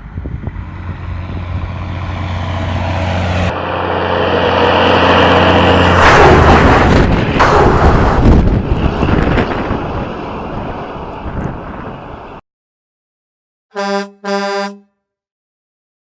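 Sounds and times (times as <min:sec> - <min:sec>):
heavy diesel engine running: 0:00.0 - 0:12.4
loud rushing surge of noise: 0:00.0 - 0:12.4.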